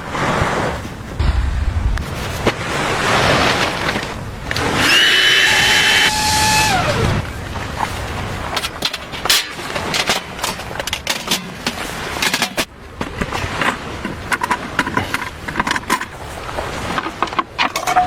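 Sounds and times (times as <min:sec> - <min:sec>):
rustling scraping noise: 0:00.6 - 0:04.7.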